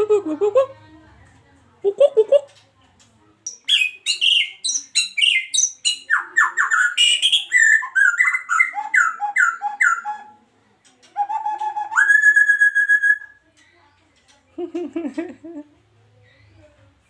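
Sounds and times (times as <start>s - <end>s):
songbird singing: 3.4s - 10.4s, 11.1s - 14.0s.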